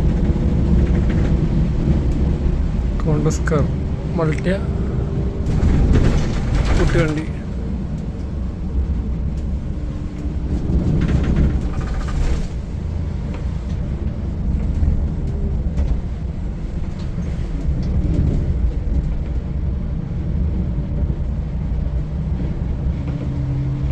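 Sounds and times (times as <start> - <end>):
diesel engine droning: 0.0 - 23.9
road noise: 0.0 - 23.9
brief rattles: 5.4 - 8.3.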